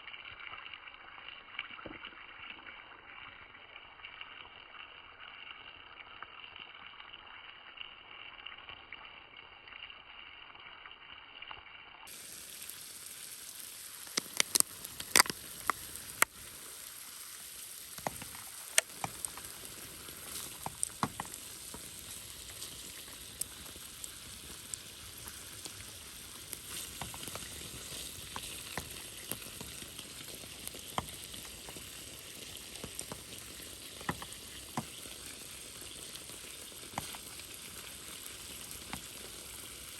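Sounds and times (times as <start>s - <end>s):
food sizzling in a pan: 5.1s - 39.9s
pops and crackles: 13.5s - 39.9s.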